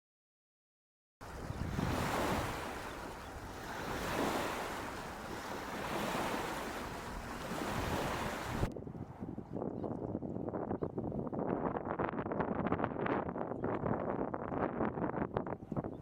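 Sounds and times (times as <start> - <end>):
rushing water: 1.2 - 8.7
wind: 1.2 - 16.0.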